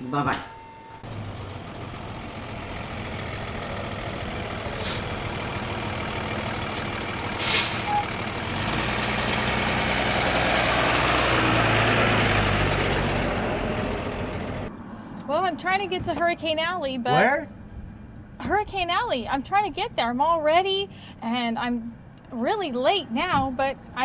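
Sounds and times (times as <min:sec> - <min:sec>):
truck engine and road noise: 0:00.0 - 0:24.0
short hisses: 0:04.8 - 0:05.2, 0:06.8 - 0:08.0.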